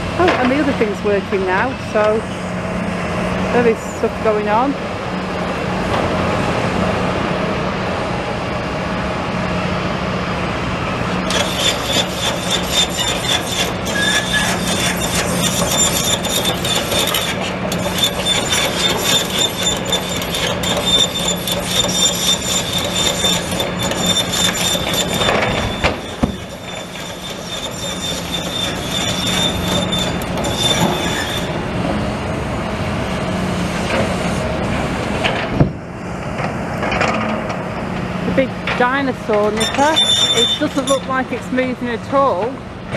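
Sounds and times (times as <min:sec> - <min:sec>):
machinery engine hum: 0:00.0 - 0:39.8
high-pitched metallic squeal: 0:11.2 - 0:32.0, 0:39.5 - 0:41.4.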